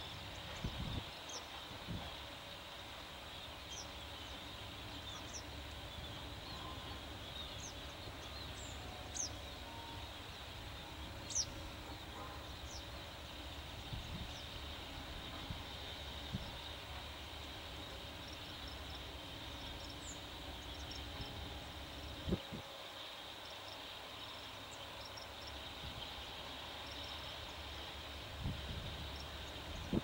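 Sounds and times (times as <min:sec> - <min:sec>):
steady high hiss: 0:00.0 - 0:30.0.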